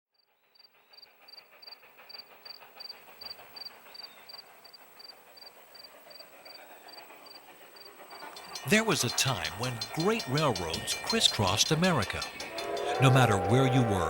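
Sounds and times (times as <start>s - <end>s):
faint steam train running: 0.2s - 14.0s
insects chirping: 1.3s - 14.0s.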